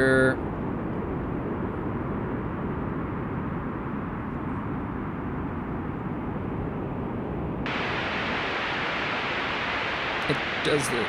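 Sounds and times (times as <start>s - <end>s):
synth filtered white noise hiss: 7.7s - 11.0s.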